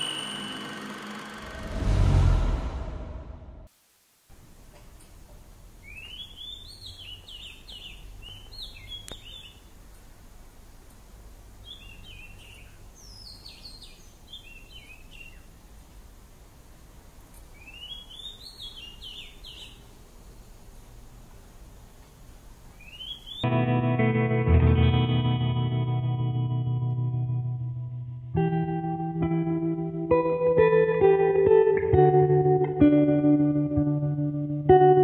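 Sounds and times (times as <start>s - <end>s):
low outdoor rumble: 1.5s - 3.7s
songbird chirping: 5.8s - 10.1s, 10.9s - 16.1s, 17.3s - 23.4s.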